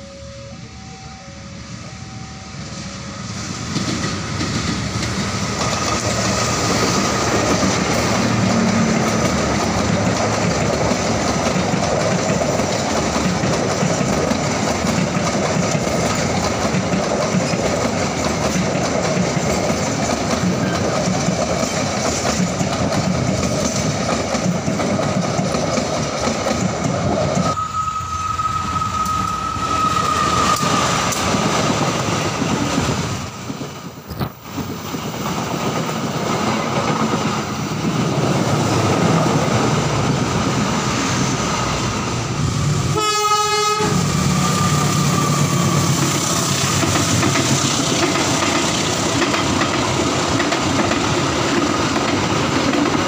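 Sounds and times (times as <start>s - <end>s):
steady high tone: 0.0s - 5.6s, 27.2s - 31.5s
passenger train passing: 0.0s - 53.0s
train wheels clattering on rails: 3.4s - 27.6s, 28.6s - 53.0s.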